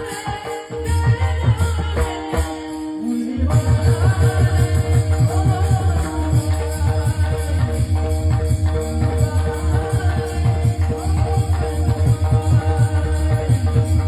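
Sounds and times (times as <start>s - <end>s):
harmonium tones: 0.0s - 14.0s
jingling cymbals: 0.0s - 14.0s
person singing: 0.0s - 14.0s
drum beating quick rhythm: 3.5s - 14.0s.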